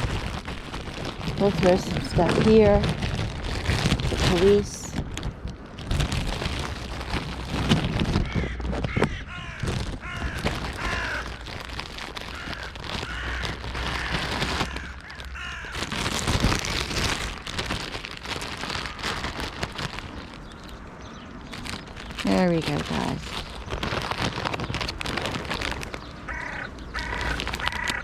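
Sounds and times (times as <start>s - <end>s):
steady low rumble: 0.0s - 27.9s
crows cawing: 8.2s - 11.5s, 12.2s - 16.0s, 18.8s - 19.3s, 26.2s - 28.0s.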